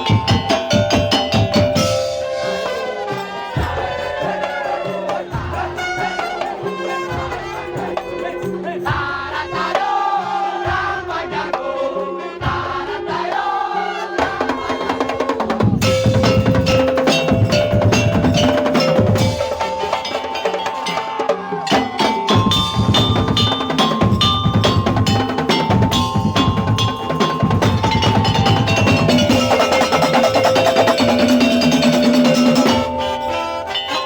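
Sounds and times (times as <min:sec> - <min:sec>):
wavering melody: 0:00.0 - 0:04.8, 0:15.8 - 0:34.0
chime-like tones: 0:00.0 - 0:05.0, 0:15.8 - 0:34.0
drums: 0:00.0 - 0:34.0.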